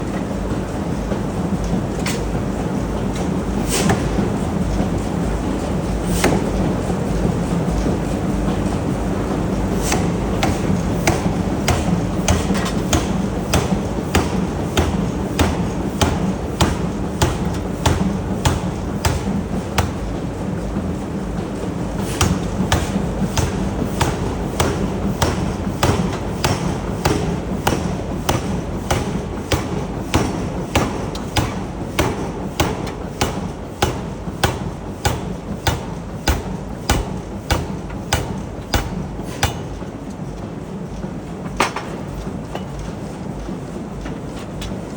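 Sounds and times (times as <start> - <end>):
low machinery hum: 0.0 - 44.9
air hammer striking hot steel: 9.8 - 20.0, 22.0 - 39.8.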